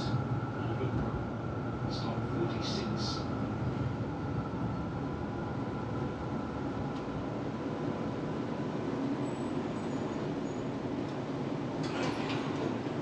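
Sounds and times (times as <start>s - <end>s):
tram wheels rumbling on rails: 0.0s - 13.0s.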